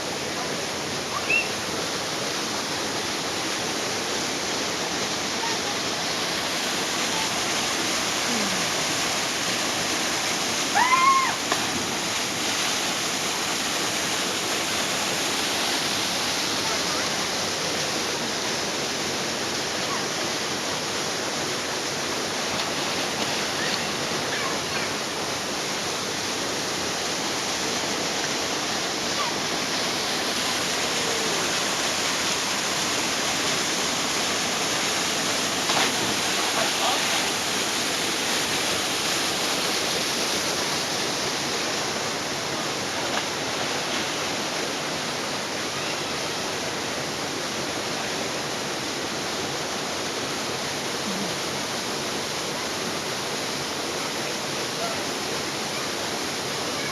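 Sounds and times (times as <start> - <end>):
waterfall rushing: 0.0 - 56.9
faint voices: 35.9 - 37.7.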